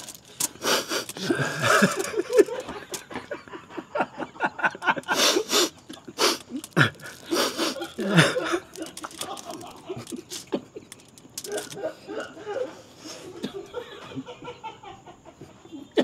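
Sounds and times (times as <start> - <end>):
people stifling laughter: 0.6 - 16.0.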